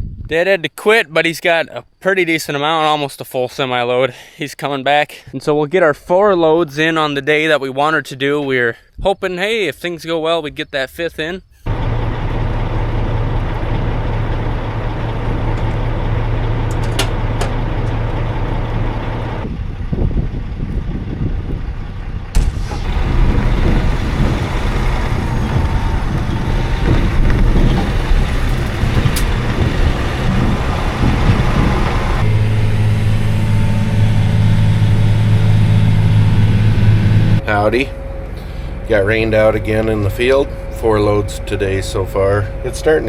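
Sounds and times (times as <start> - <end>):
diesel machinery humming: 11.7 - 43.0.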